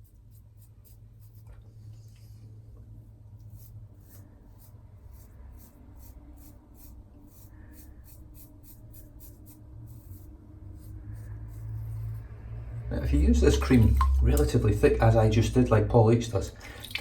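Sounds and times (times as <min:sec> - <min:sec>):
razor scraping stubble: 0:03.4 - 0:12.4.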